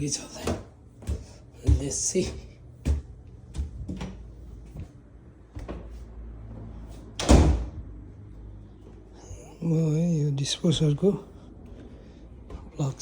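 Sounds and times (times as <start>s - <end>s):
door shutting with a bang: 7.2s - 7.8s.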